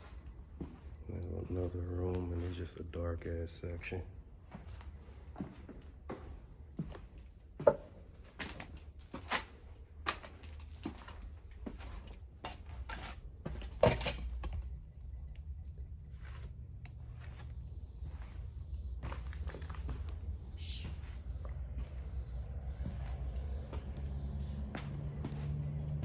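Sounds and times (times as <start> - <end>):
footsteps on littered floor: 0.0 - 14.7, 15.4 - 26.0
low steady rumble: 11.2 - 26.0.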